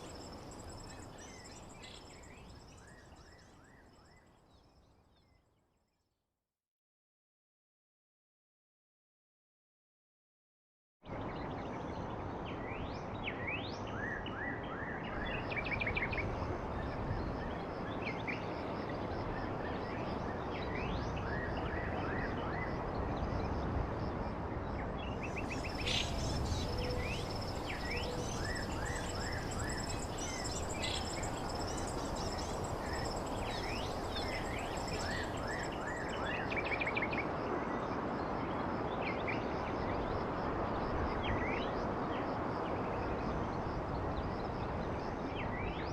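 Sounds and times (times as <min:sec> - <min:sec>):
background hiss: 0:25.3 - 0:36.2
small birds chirping: 0:25.3 - 0:36.4.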